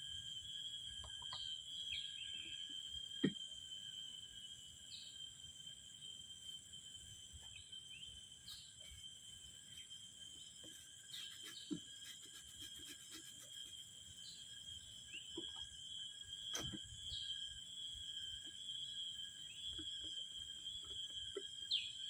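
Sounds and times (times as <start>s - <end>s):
high-pitched insect drone: 0.0s - 22.0s
bird chirps: 1.0s - 2.7s.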